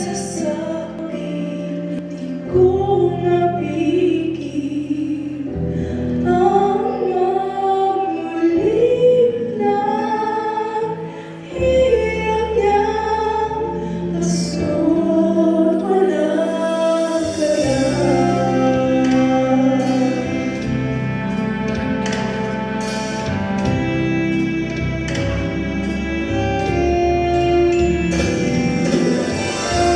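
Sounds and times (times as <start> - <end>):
person singing a slow song: 0.0 - 21.0
low bass notes: 16.8 - 29.9.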